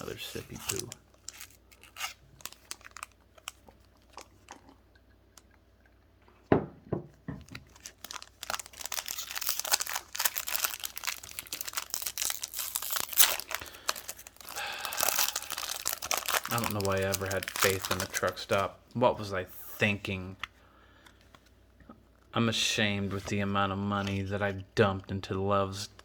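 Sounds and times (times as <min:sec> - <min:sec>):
foil wrapper crinkling and tearing: 0:00.0 - 0:04.5, 0:07.5 - 0:18.7.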